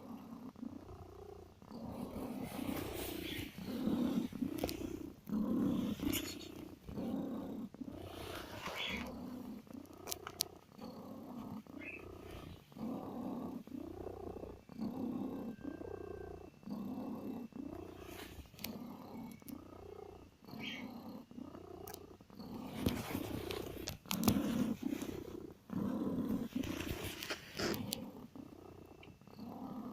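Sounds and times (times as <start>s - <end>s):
cat purring: 0.0s - 29.9s
scratchy rustling with clicks: 1.9s - 10.7s, 21.9s - 28.3s.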